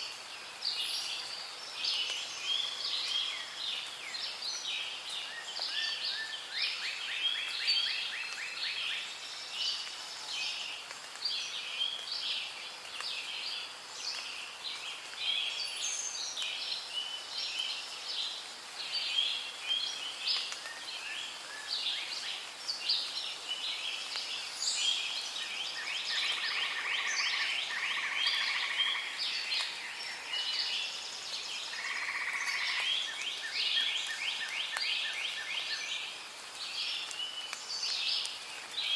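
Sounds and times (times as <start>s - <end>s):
birds chirping and trilling: 23.0s - 36.1s.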